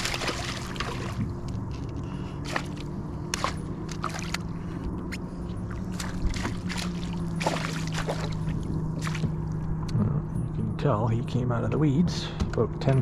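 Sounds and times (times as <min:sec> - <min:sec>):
fish splashing: 0:00.0 - 0:01.5, 0:02.2 - 0:04.6, 0:05.7 - 0:09.6
water sloshing and dripping: 0:00.0 - 0:04.8, 0:05.5 - 0:09.8
low steady hum: 0:00.0 - 0:13.0.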